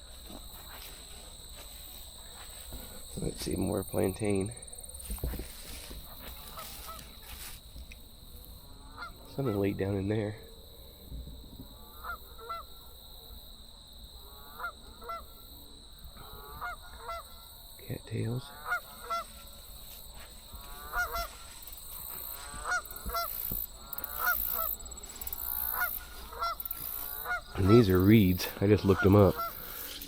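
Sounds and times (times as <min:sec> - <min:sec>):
geese honking: 0:05.4 - 0:07.6, 0:08.7 - 0:10.0, 0:11.8 - 0:12.9, 0:14.2 - 0:15.4, 0:16.2 - 0:17.6, 0:18.4 - 0:30.0.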